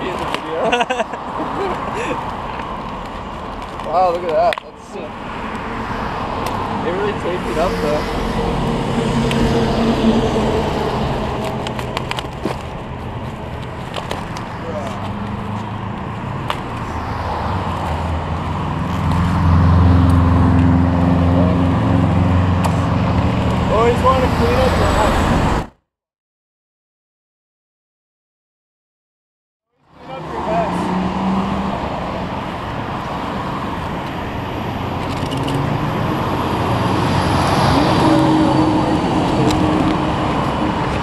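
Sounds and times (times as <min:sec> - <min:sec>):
vehicle engine humming: 0:00.0 - 0:25.7, 0:29.8 - 0:41.0
road traffic rushing: 0:00.0 - 0:25.8, 0:29.7 - 0:41.0.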